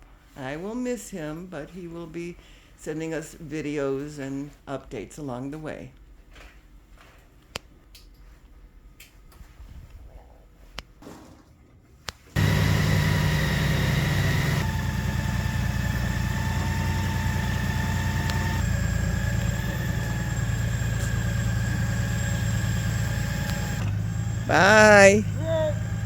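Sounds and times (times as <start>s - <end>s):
motorcycle engine idling: 12.4s - 26.0s.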